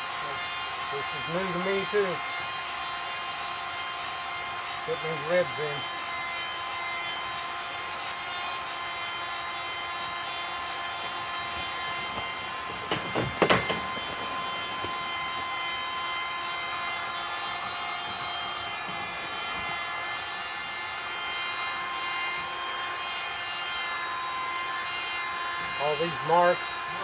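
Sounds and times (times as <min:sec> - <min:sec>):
heat gun whining: 0:00.0 - 0:27.0
sharp knocks: 0:11.5 - 0:15.7.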